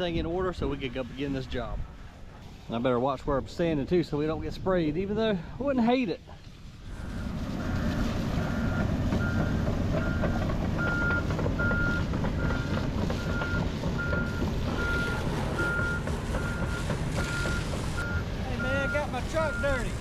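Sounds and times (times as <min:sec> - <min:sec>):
diesel engine rumbling: 0:00.0 - 0:20.0
backup alarm beeping: 0:08.4 - 0:20.0.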